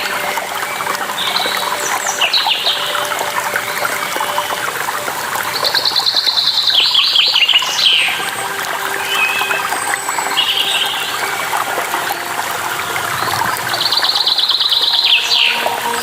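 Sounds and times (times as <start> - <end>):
flowing water: 0.0 - 16.0
songbirds chirping: 0.0 - 16.0.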